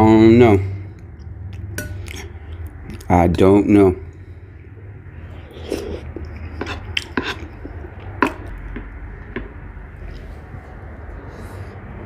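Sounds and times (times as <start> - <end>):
spoon tapping a bowl: 1.8 - 2.0.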